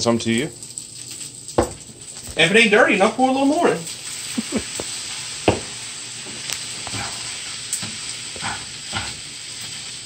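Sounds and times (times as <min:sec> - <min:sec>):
fried rice sizzling in pan: 0:00.0 - 0:10.0
spatula scraping and knocking pan: 0:05.4 - 0:09.9.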